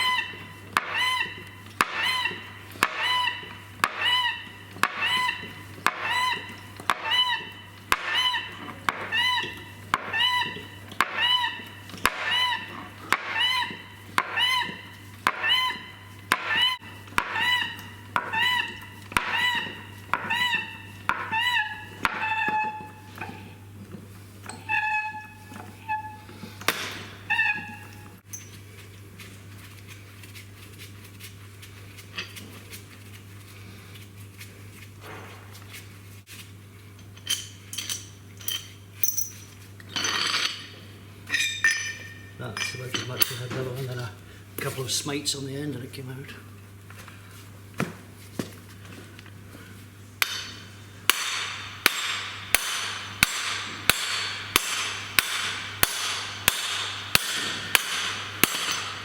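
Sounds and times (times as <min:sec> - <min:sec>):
steady low hum: 0:00.0 - 0:59.0
hammer ringing on steel: 0:50.2 - 0:59.0.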